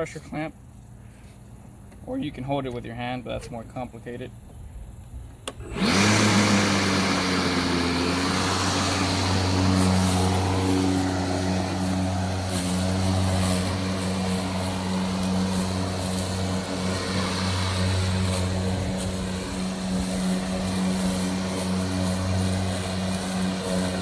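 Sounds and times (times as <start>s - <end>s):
electric lawn mower humming: 5.4s - 24.0s.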